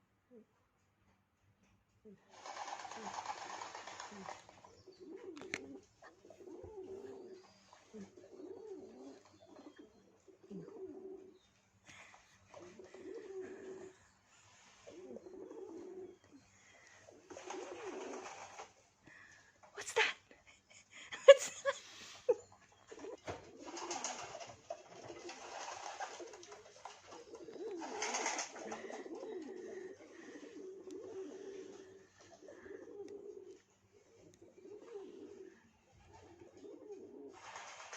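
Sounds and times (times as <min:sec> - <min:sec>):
pigeon cooing: 0:02.1 - 0:18.8, 0:22.3 - 0:37.9.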